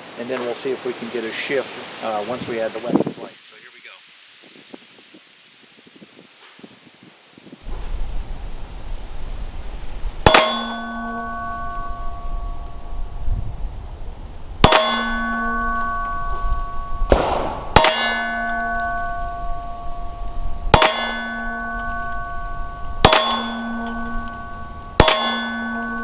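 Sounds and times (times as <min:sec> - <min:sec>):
steel target ringing: 0:10.2 - 0:13.2, 0:14.6 - 0:26.0
pistol shots: 0:17.1 - 0:18.2.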